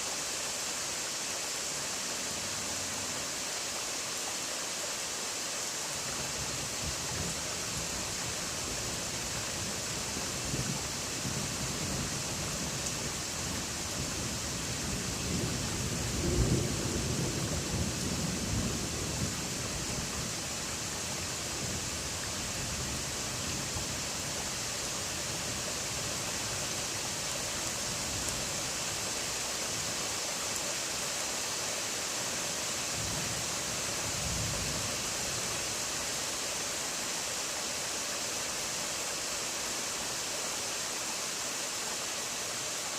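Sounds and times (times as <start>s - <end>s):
steady rain hiss: 0.0s - 42.9s
distant thunder rumbling: 15.1s - 20.3s.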